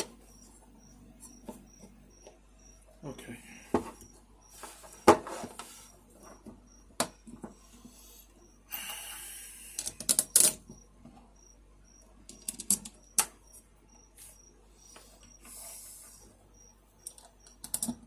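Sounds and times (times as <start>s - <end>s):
clicks and knocks of small parts: 9.8s - 10.7s, 12.3s - 13.4s, 17.0s - 18.0s.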